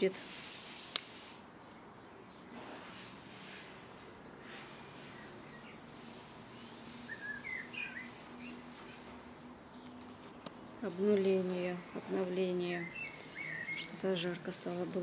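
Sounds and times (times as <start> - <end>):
faint outdoor background noise: 0.0 - 15.0
small bird chirping: 3.6 - 15.0.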